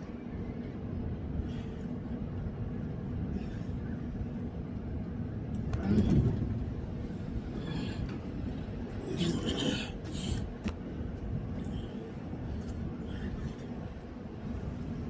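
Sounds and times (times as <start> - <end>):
wind buffeting microphone: 10.0 - 15.0.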